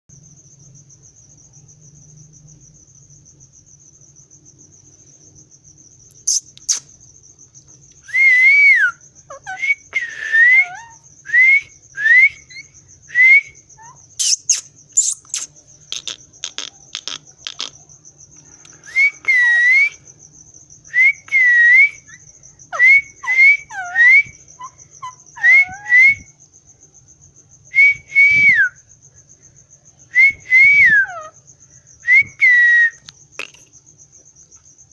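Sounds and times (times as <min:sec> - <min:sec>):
parrot whistling: 0:08.1 - 0:12.6, 0:13.2 - 0:15.5, 0:18.9 - 0:20.0, 0:21.0 - 0:26.2, 0:30.5 - 0:31.3.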